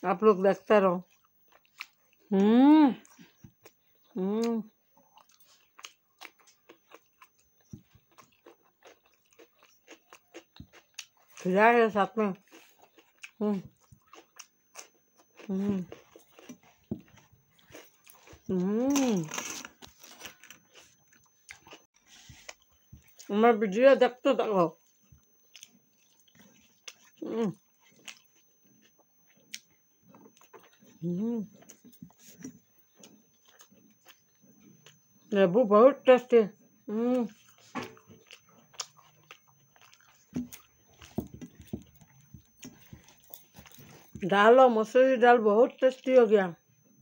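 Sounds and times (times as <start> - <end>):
person chewing food: 1.0 - 11.5, 12.3 - 23.3, 24.8 - 35.3, 36.7 - 44.2.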